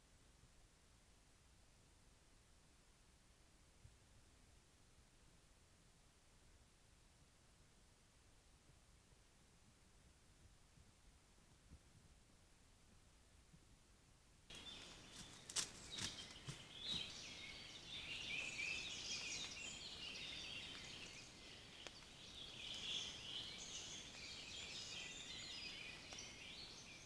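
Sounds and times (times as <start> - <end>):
songbirds singing: 14.5 - 27.0.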